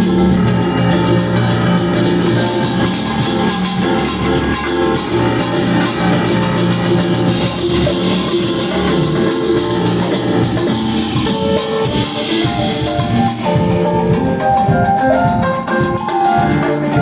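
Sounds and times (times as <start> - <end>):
drum kit beat: 0.0 - 17.0.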